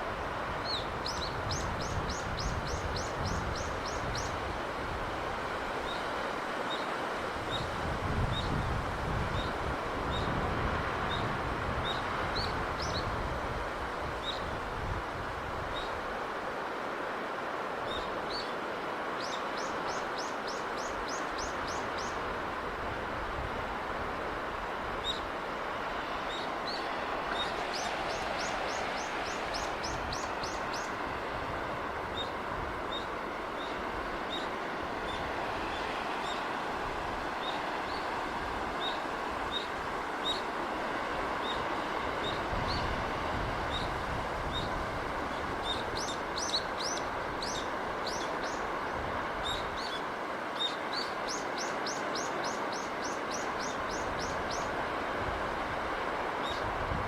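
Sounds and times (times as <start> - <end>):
sea breeze rushing: 0.0 - 57.0
surf: 19.2 - 57.0.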